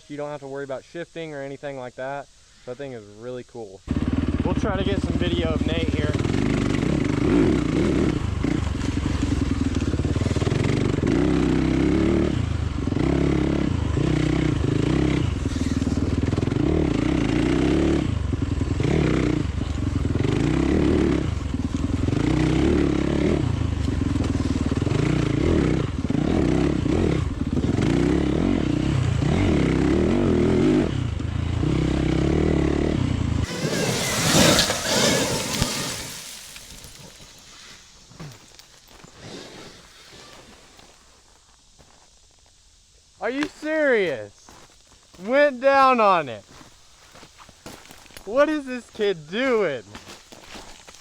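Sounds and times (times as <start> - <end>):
dirt bike engine revving: 3.9 - 38.3.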